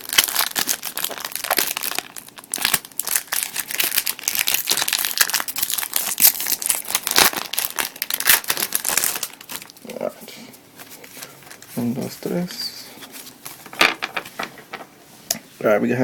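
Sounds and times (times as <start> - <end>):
wrapper crinkling and tearing: 0.0 - 10.0.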